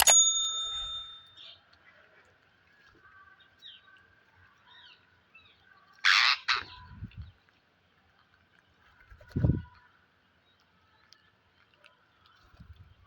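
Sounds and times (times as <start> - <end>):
parrot screeching: 6.0 - 6.7.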